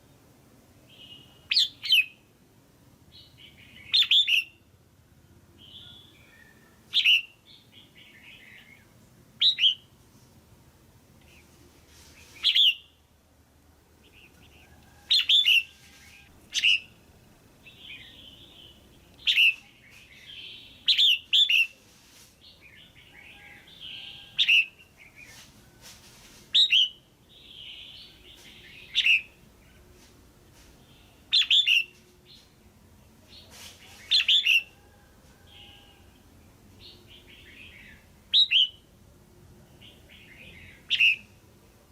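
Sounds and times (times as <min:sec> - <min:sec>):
bird sharp calls: 0:05.6 - 0:08.8, 0:12.2 - 0:12.9, 0:14.0 - 0:16.9, 0:17.7 - 0:21.7, 0:26.6 - 0:29.4, 0:33.3 - 0:34.8, 0:36.8 - 0:38.8, 0:39.8 - 0:41.3.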